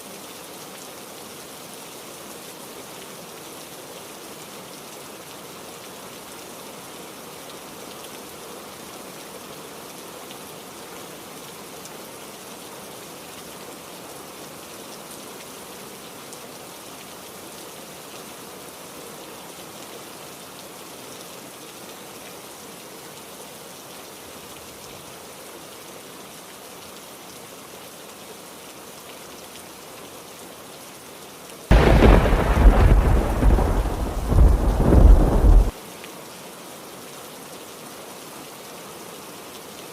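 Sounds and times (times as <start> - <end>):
heavy rain: 0.0 - 39.9
thunder clap and rumble: 31.7 - 35.7.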